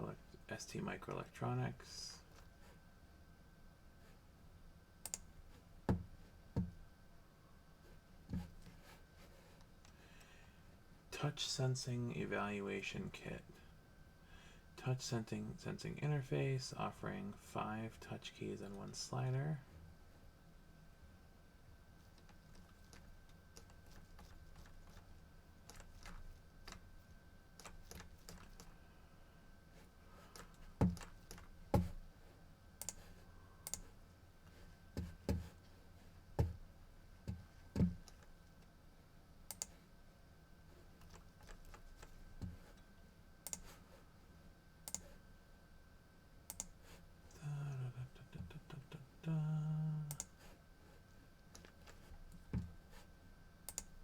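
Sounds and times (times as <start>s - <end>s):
computer keyboard typing: 25.6s - 26.8s, 27.6s - 28.7s
person humming: 47.4s - 50.2s.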